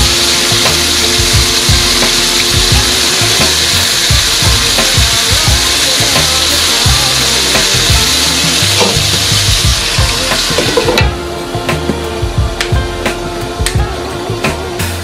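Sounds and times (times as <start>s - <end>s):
fish sizzling in oil: 0.0s - 15.0s.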